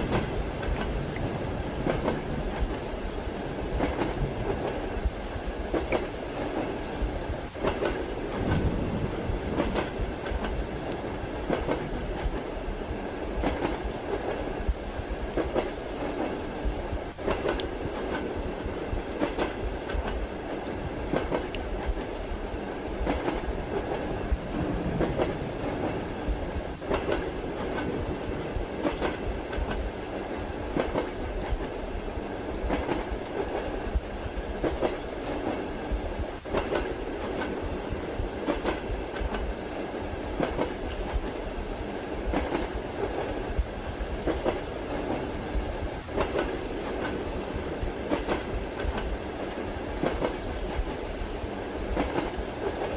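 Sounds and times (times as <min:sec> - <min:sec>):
rain hissing: 0:00.0 - 0:52.9
train rumbling: 0:00.0 - 0:52.9
wheels clacking over rail joints: 0:44.2 - 0:51.2.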